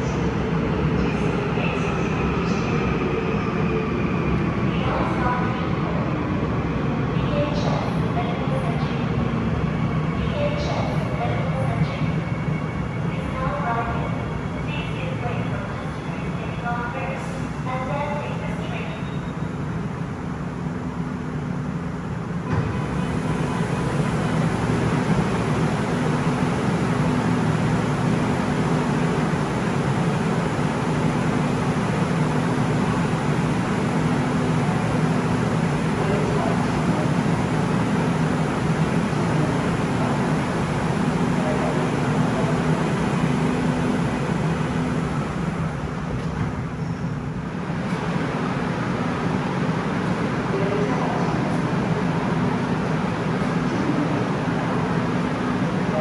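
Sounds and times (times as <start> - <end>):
subway train rumble and hum: 0.0 - 56.0.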